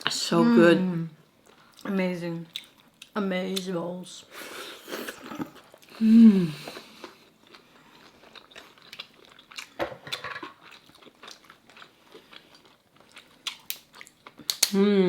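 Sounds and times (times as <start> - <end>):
person humming mmm: 5.0 - 6.9, 14.6 - 15.0
wet chewing and biting: 6.7 - 14.8.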